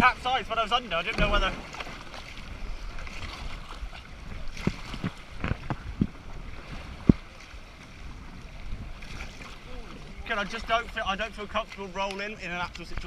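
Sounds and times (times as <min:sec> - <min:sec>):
short knocks on kayak: 0:01.1 - 0:01.9.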